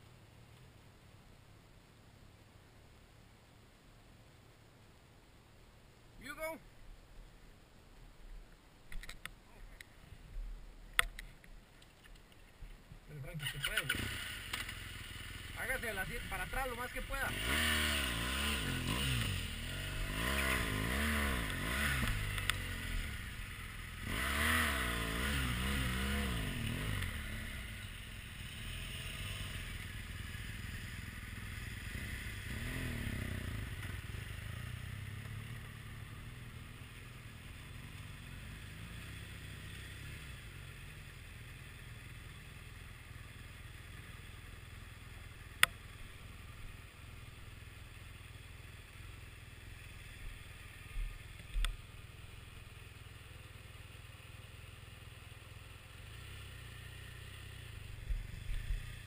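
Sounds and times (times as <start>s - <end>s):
sharp click: 11.0s - 12.4s
motorcycle engine revving: 13.3s - 59.0s.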